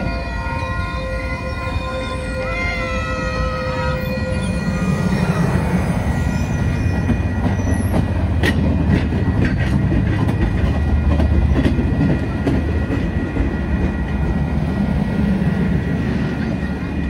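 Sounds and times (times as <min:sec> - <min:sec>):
train rumbling past: 0:00.0 - 0:17.0
wheels clicking on rails: 0:06.8 - 0:14.5.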